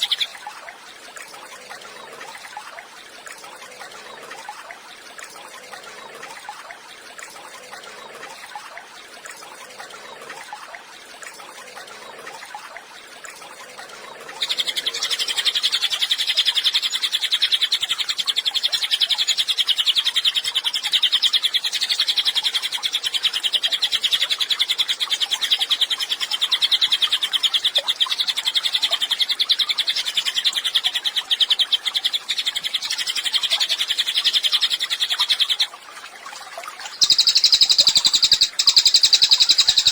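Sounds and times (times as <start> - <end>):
songbird rapid high trill: 36.9 - 39.9.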